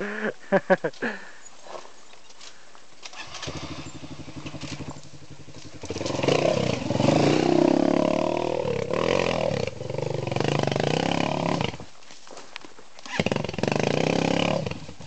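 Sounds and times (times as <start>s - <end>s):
dirt bike engine revving: 3.1s - 11.9s, 13.0s - 15.0s.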